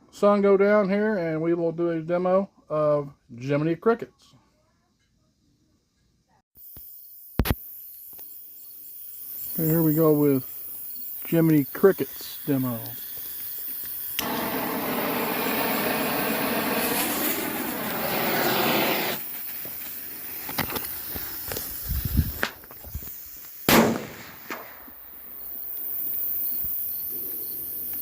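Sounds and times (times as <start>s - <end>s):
firecrackers popping and banging: 13.8s - 25.0s.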